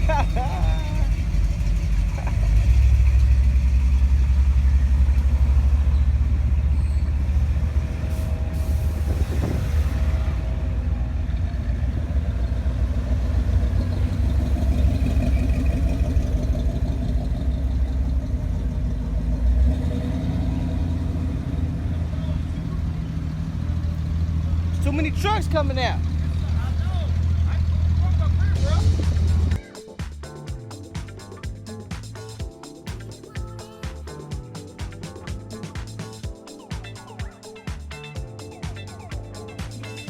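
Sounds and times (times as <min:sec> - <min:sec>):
truck engines low rumble: 0:00.0 - 0:29.6.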